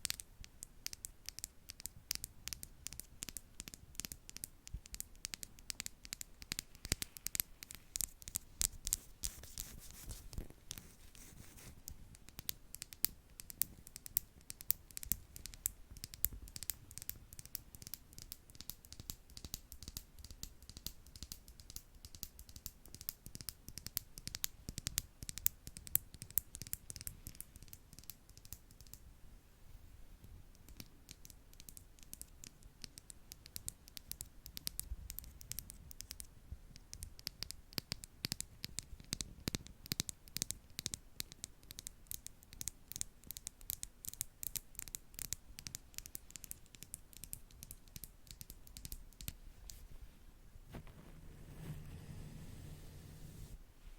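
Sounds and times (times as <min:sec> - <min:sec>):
brushes tapping on microphone: 0:50.7 - 0:53.6.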